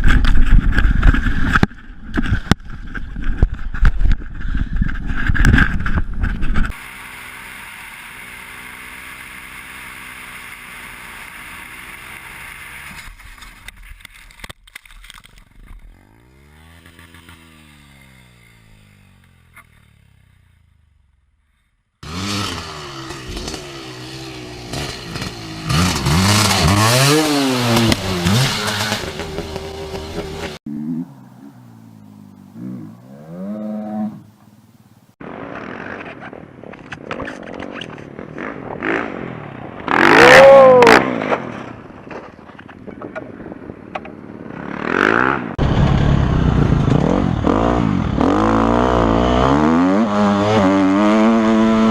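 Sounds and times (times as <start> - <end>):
motorcycle engines revving: 6.6 - 13.2, 15.8 - 20.7, 22.0 - 34.6, 35.2 - 51.9.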